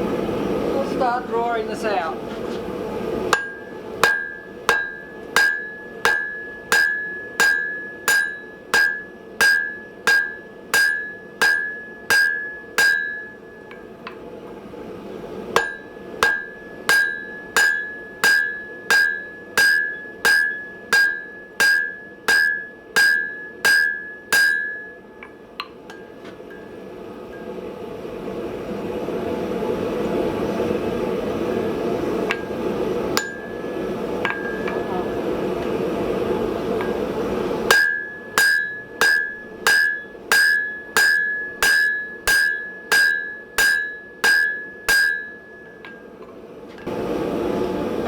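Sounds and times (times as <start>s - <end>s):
hammer striking steel on anvil: 3.3s - 14.2s, 15.5s - 27.6s, 32.2s - 35.8s, 36.8s - 46.9s.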